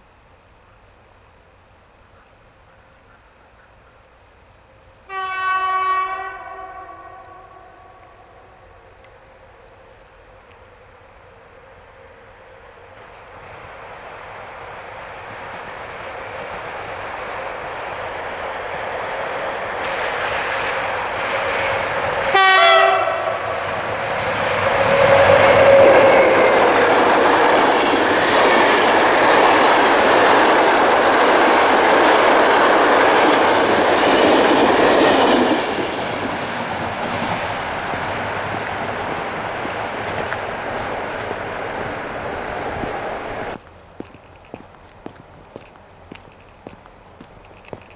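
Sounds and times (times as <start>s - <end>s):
passenger train rolling past: 4.2s - 47.9s
train horn blast: 5.1s - 8.8s, 21.4s - 27.1s.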